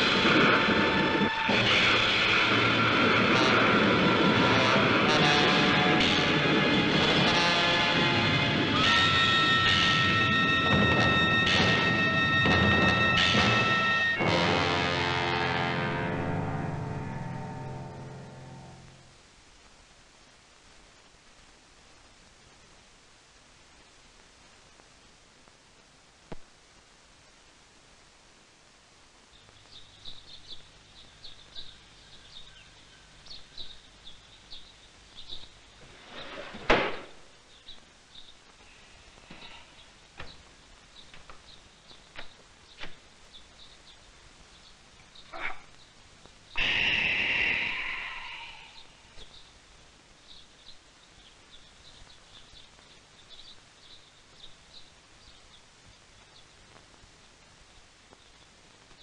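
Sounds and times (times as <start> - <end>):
light hiss: 18.6 - 59.0
small birds chirping: 29.2 - 36.4, 37.3 - 59.0.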